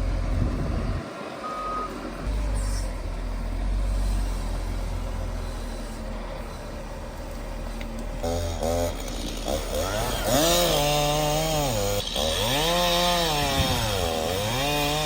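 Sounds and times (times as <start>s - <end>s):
chainsaw revving: 8.2s - 15.0s.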